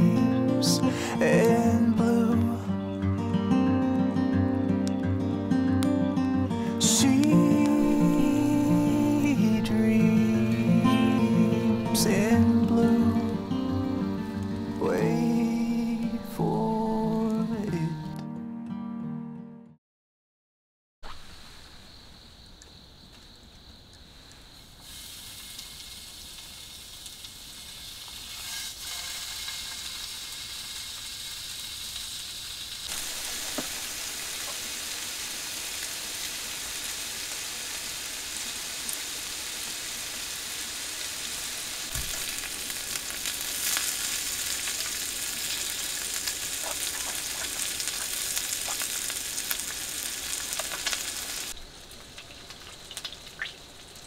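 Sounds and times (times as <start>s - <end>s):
food sizzling in a pan: 6.6s - 17.3s, 24.4s - 54.0s.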